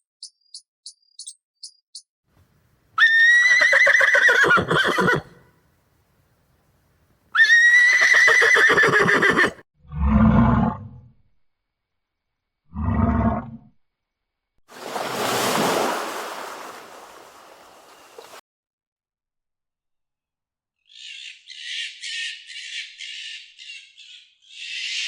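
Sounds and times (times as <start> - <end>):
horse whinnying: 3.0 - 5.4, 7.4 - 9.6.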